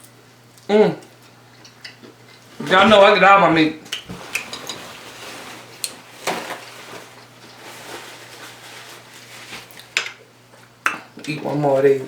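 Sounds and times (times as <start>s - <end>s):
soft rustling: 4.1s - 9.8s.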